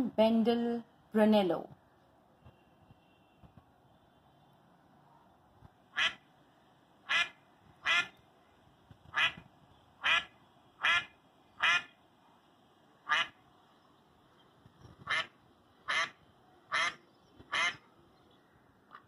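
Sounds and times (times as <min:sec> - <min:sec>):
duck quacking: 0:05.9 - 0:06.2, 0:07.1 - 0:08.1, 0:09.1 - 0:09.4, 0:10.0 - 0:11.9, 0:13.0 - 0:13.4, 0:15.0 - 0:15.3, 0:15.9 - 0:17.8.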